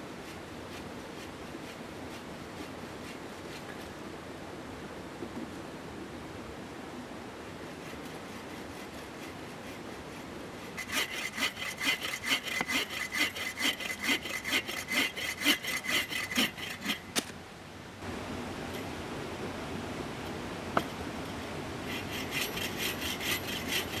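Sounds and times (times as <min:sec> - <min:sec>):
hand saw cutting wood: 0:07.8 - 0:17.1, 0:21.8 - 0:24.0
mountain stream rushing: 0:10.2 - 0:24.0.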